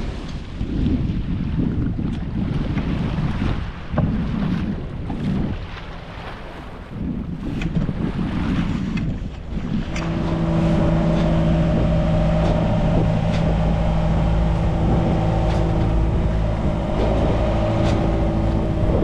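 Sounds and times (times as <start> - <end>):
boat engine humming: 9.4 - 19.0.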